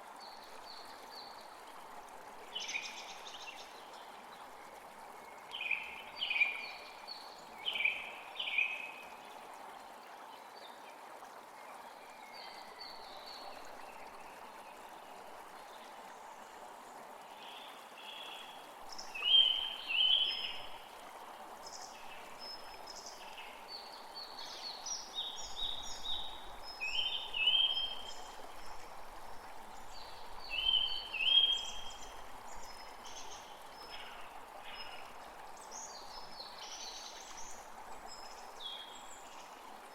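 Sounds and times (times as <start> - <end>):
songbird calling: 19.1 - 20.6.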